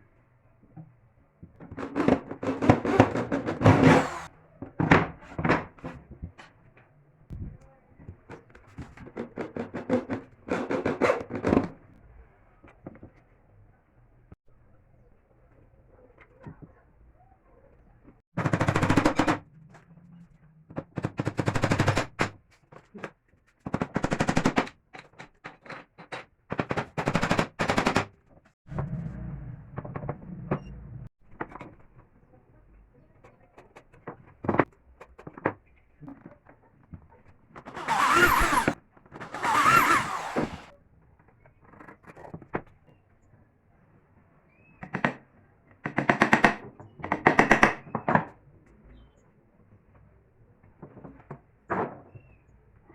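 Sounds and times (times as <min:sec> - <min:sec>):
power tool rattling bursts: 0:03.6 - 0:04.3, 0:37.7 - 0:40.7.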